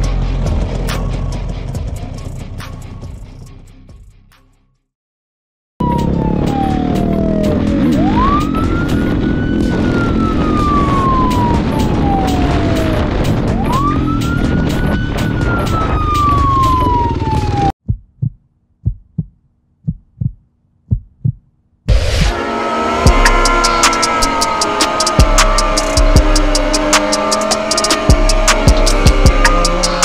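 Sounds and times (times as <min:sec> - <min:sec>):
vehicle engine noise: 0:00.0 - 0:03.4, 0:05.8 - 0:17.7, 0:21.9 - 0:30.0
music: 0:00.0 - 0:04.9, 0:05.8 - 0:17.6, 0:21.9 - 0:30.0
police siren wailing: 0:05.8 - 0:17.8, 0:21.9 - 0:30.0
heartbeat thumps: 0:17.5 - 0:21.5, 0:25.2 - 0:27.0, 0:27.9 - 0:30.0.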